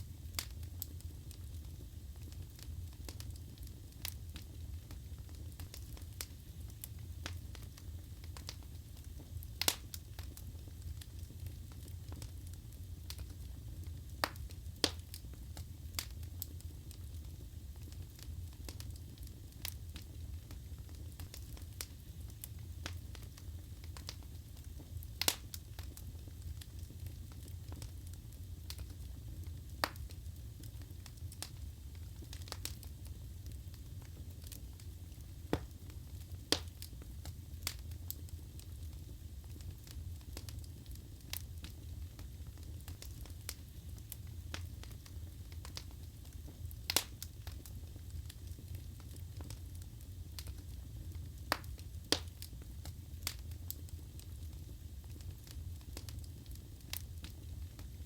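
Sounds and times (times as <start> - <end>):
wood fire burning in fireplace: 0.0 - 58.0.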